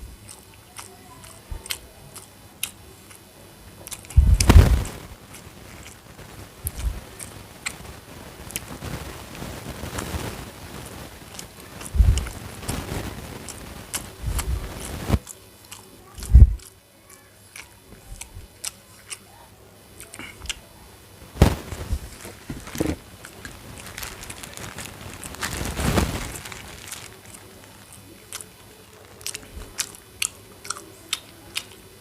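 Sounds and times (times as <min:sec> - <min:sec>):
person biting and chewing: 0:00.2 - 0:03.2, 0:03.8 - 0:07.8, 0:11.3 - 0:19.2, 0:22.6 - 0:31.8
low thumps: 0:04.2 - 0:04.9.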